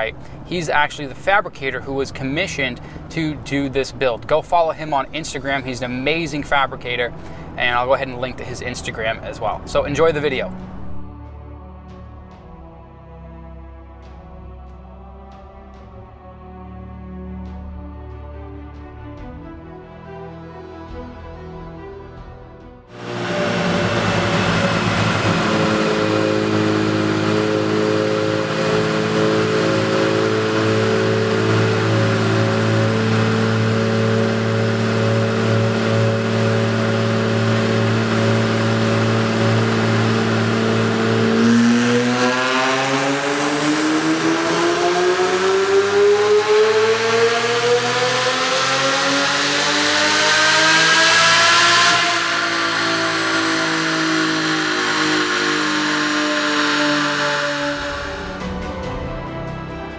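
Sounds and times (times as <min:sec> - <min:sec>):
car engine running on dyno: 0:22.9 - 0:58.8.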